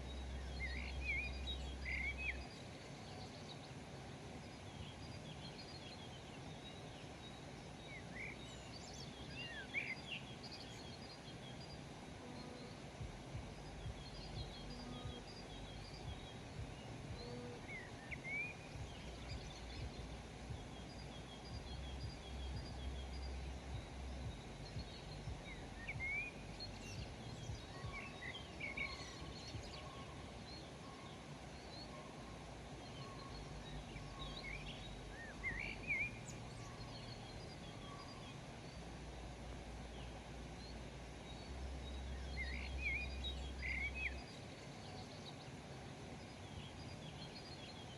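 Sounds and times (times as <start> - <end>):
songbirds chirping and singing: 0.0 - 47.9
steady background hiss: 0.0 - 47.9
low rumble: 13.0 - 18.0, 18.7 - 28.0.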